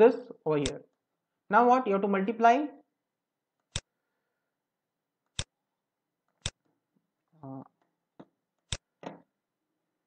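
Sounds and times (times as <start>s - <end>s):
computer mouse clicking: 0.6s - 0.9s, 3.6s - 3.9s, 5.2s - 5.5s, 6.3s - 6.6s
person humming: 7.4s - 7.7s.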